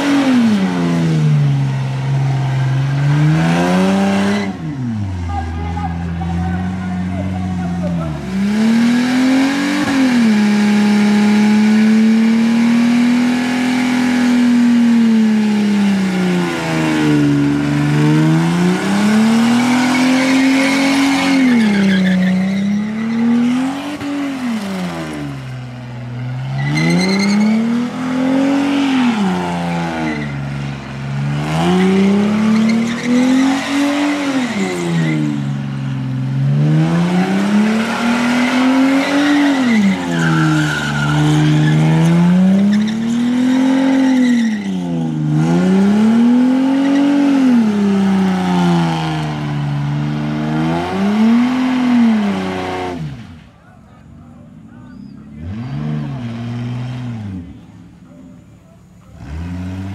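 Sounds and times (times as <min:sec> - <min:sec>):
car engine revving: 0:00.0 - 0:59.9
tyres squealing: 0:16.0 - 0:36.0, 0:37.0 - 0:48.4.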